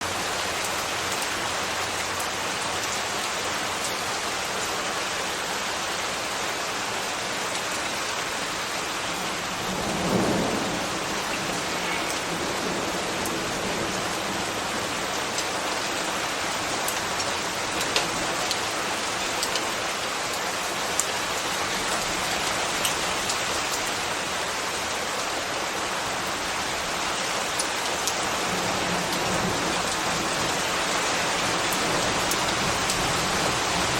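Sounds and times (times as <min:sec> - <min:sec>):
steady rain: 0:00.0 - 0:33.9.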